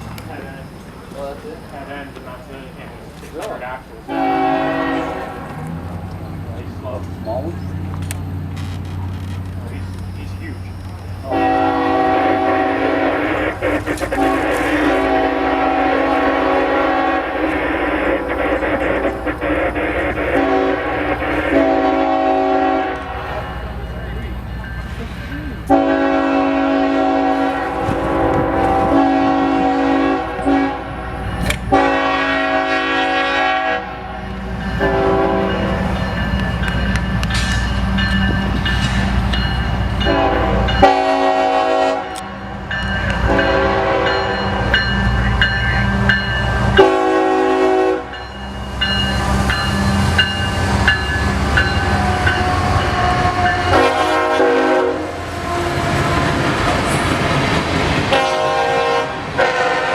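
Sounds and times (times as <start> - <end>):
train rumbling past: 0.0 - 59.9
train horn blasts: 4.1 - 5.9, 11.2 - 23.8, 25.7 - 36.2, 39.9 - 57.4, 58.1 - 59.9
wheels clattering on rails: 4.9 - 11.4, 13.5 - 15.2, 34.2 - 41.0.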